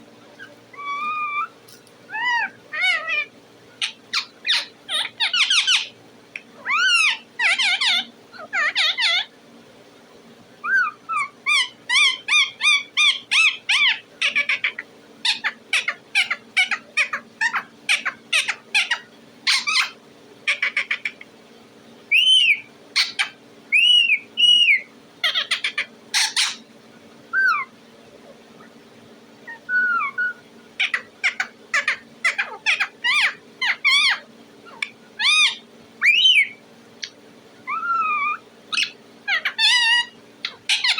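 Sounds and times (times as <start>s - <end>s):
parrot chirping and whistling: 0.4s - 5.9s, 6.6s - 9.3s, 10.6s - 20.0s, 22.1s - 26.6s, 27.3s - 27.7s, 29.5s - 36.6s, 37.7s - 40.9s.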